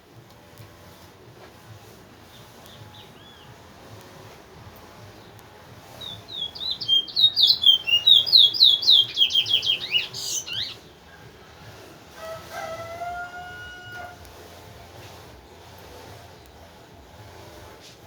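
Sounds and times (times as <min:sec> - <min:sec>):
finch singing whistled notes: 0:02.3 - 0:03.5, 0:05.9 - 0:10.9.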